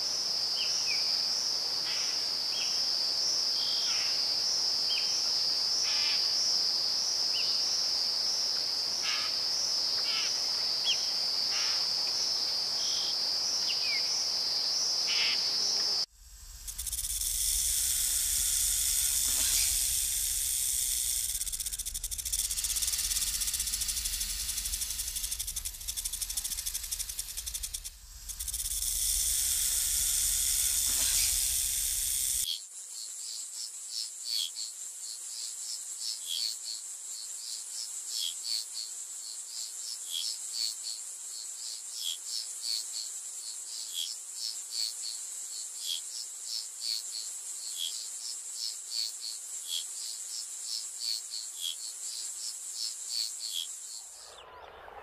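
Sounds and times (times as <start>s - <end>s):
insect chirps: 0.0s - 55.0s
insects high hiss: 0.0s - 55.0s
insects high drone: 9.0s - 32.5s
low rumble: 16.1s - 31.7s.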